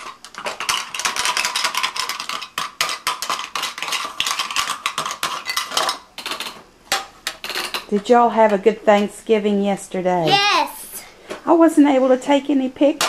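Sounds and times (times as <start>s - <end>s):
toy pots and pans clattering: 0.0s - 8.0s.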